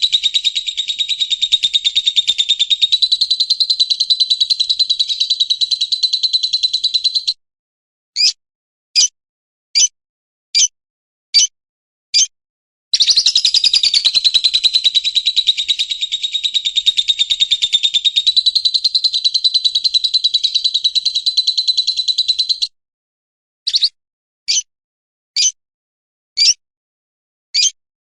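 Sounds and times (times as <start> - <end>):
bird singing fast trill: 0.0 - 7.4, 8.2 - 8.4, 13.0 - 22.8, 23.7 - 24.7.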